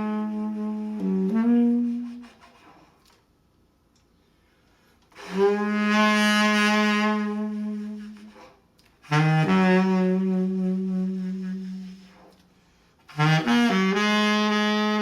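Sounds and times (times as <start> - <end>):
saxophone long low notes: 0.0 - 2.7, 5.1 - 12.4, 13.0 - 15.0.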